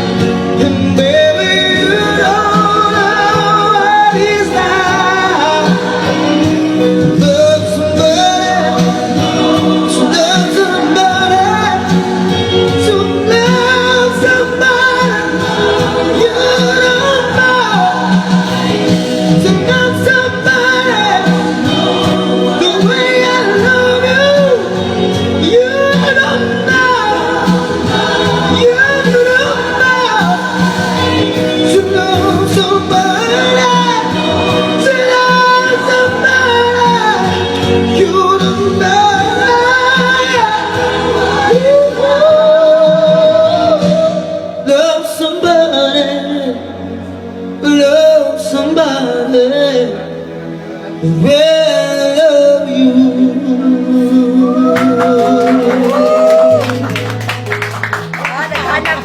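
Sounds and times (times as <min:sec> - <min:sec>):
man singing slow song: 0:00.0 - 0:56.9
instrumental accompaniment: 0:00.0 - 0:59.0.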